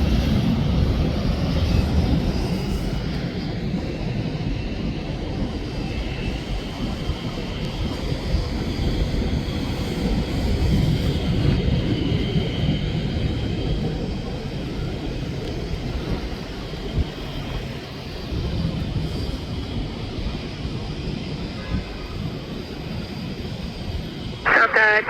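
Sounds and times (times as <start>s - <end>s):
jet airliner engines rumbling: 0.0s - 25.0s.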